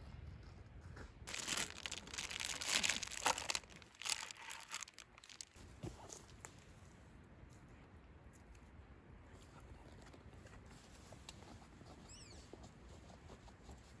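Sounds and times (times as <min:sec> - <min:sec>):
crinkling rustling handling noise: 0:01.3 - 0:06.4.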